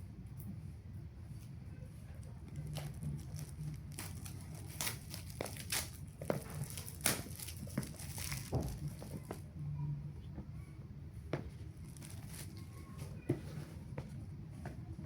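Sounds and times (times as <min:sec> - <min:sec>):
packaging crinkling and tearing: 0:02.5 - 0:09.2.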